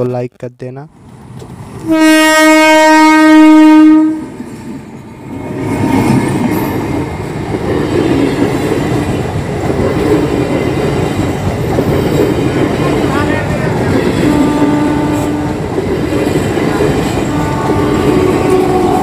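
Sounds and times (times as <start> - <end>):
train horn: 1.8 - 4.4, 14.2 - 15.6, 17.2 - 19.0
train wheels rumbling and clattering: 4.0 - 19.0.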